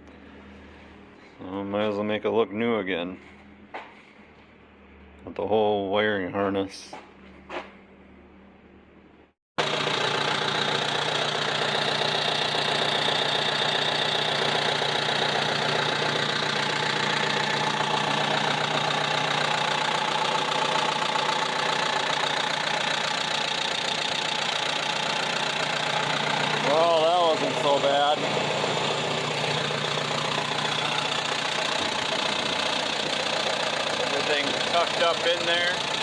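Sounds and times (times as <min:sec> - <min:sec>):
tractor engine idling: 0:09.6 - 0:36.0.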